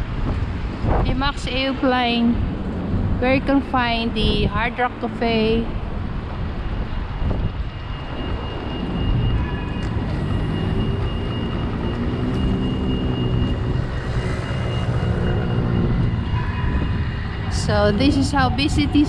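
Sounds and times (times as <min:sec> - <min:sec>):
low rumble of traffic: 0:00.0 - 0:19.0
wind on microphone: 0:00.0 - 0:19.0
vehicle engine passing: 0:08.3 - 0:19.0.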